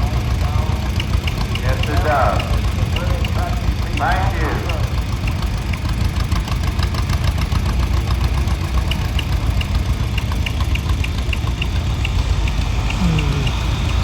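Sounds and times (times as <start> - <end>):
tractor engine idling: 0.0 - 14.0
light regular ticking: 0.1 - 14.0.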